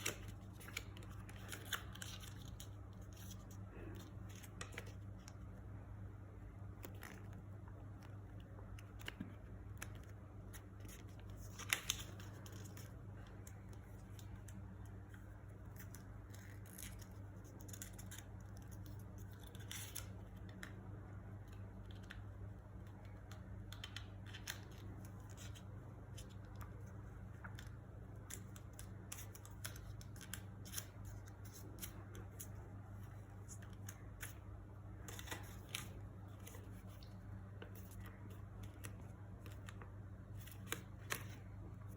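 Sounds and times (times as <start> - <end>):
paper crinkling and creasing: 0.0 - 5.6, 6.8 - 20.8, 23.0 - 41.9
steady low hum: 0.0 - 41.9.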